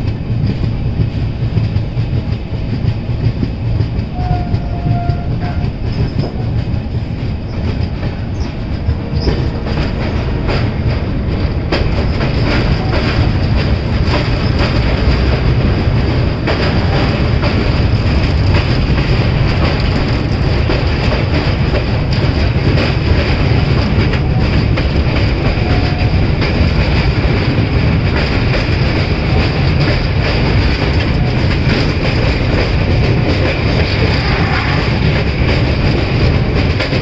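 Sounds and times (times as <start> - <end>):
train coaches rumbling: 0.0 - 37.0.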